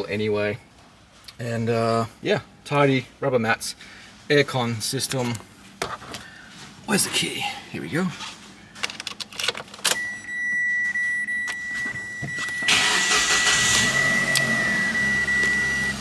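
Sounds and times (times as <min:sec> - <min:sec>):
keys rattling in ignition: 0:08.8 - 0:14.5
high electronic warning tone: 0:10.0 - 0:16.0
engine cranking and idling: 0:12.0 - 0:16.0.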